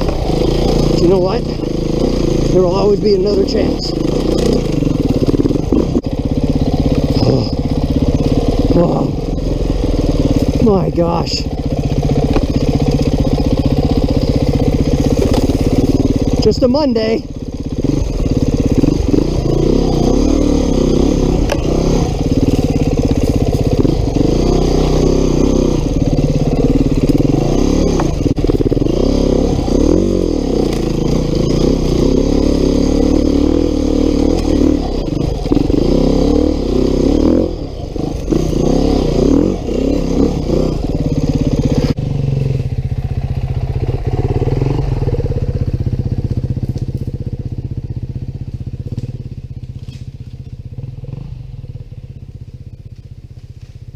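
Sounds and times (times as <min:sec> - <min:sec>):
knocks and clatter from bike: 0:00.0 - 0:00.7, 0:11.7 - 0:16.4, 0:21.4 - 0:23.9, 0:46.1 - 0:53.9
motorcycle engine revving: 0:00.0 - 0:53.9.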